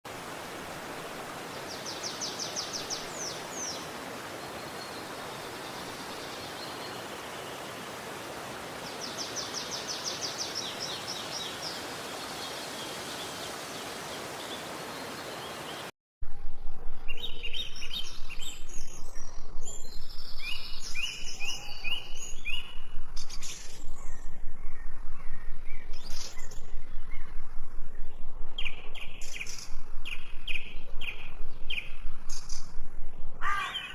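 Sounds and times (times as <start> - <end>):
stream water rushing: 0.1 - 15.9
steady low hum: 16.2 - 33.5
many birds chirping: 33.4 - 33.9.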